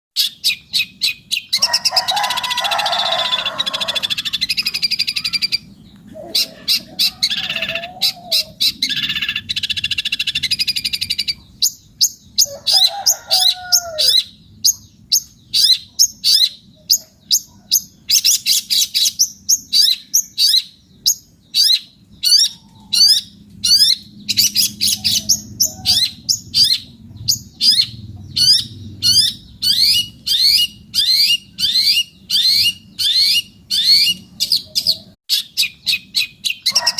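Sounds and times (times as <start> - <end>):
shrike singing: 0.2 - 17.0.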